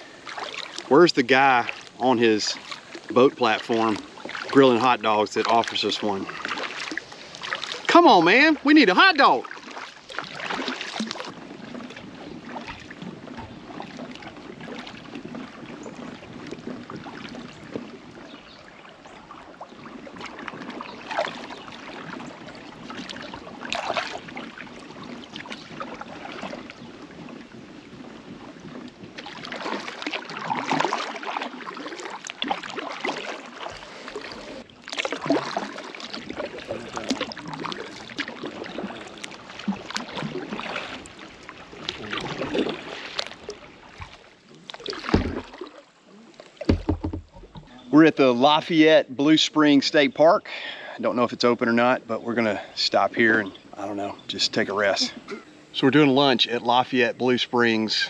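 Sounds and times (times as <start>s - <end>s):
kayak paddle splashing in water: 0.0s - 48.8s.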